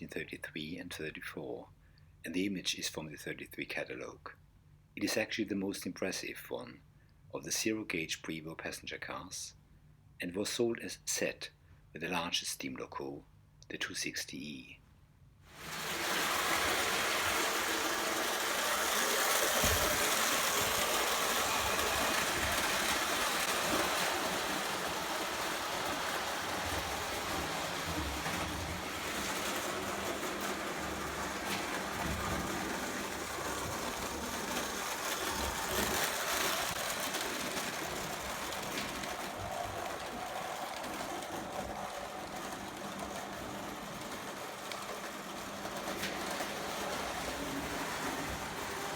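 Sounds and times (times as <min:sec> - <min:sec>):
toy train running on track: 0:15.5 - 0:48.9.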